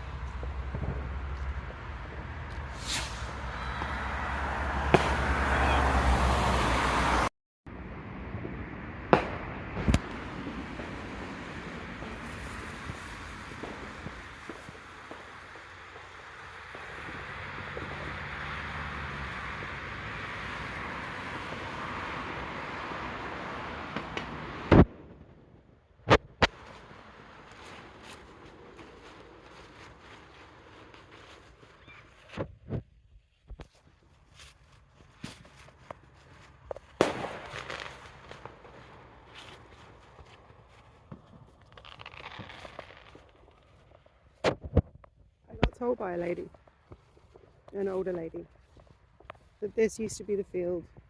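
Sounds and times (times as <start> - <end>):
firework bangs: 0.0 - 6.3, 8.4 - 32.8, 36.6 - 43.7
rush of outdoor noise: 0.0 - 51.0.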